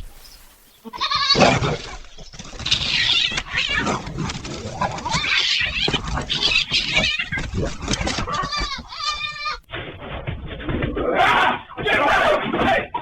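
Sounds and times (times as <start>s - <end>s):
harsh animal cries: 0.8s - 9.7s.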